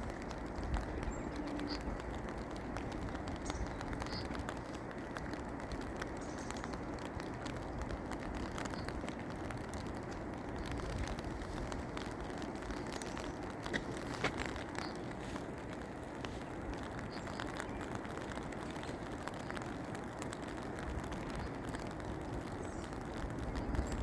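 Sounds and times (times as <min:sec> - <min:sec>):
rain drops pattering: 0:00.0 - 0:24.0.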